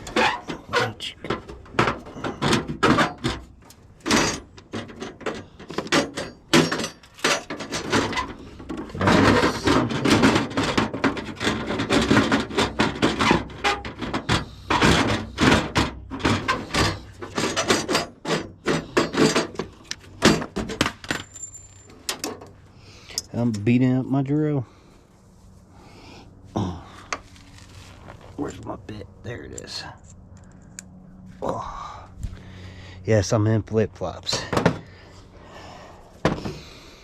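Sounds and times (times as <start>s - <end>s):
hard parts knocking and clattering: 0.0s - 23.7s, 34.3s - 35.0s, 35.7s - 36.8s.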